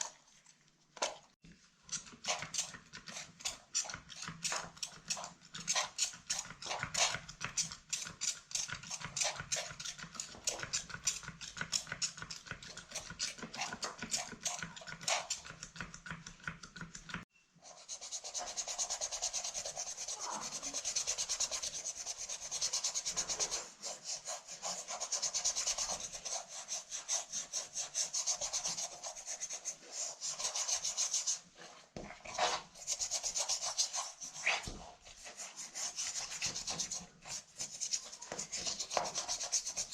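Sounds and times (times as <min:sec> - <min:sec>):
scrubbing a handbag: 0:17.7 - 0:39.9.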